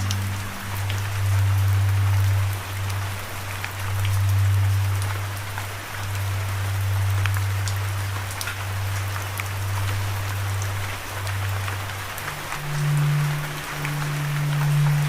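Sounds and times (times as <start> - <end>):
loud low drone: 0.0 - 8.3, 9.6 - 15.0
steady rain falling: 0.0 - 15.0.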